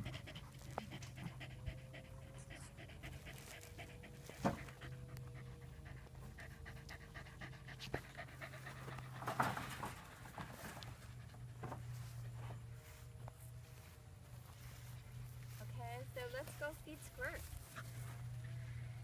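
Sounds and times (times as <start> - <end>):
dog panting: 0.0 - 9.5.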